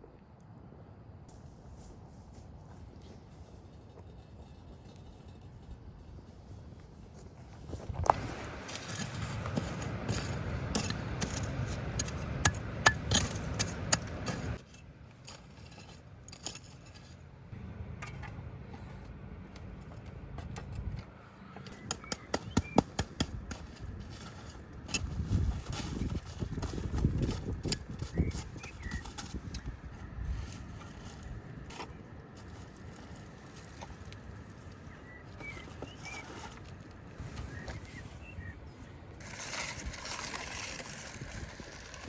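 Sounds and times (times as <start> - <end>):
scraping and rustling: 21.7 - 38.2, 39.2 - 42.0.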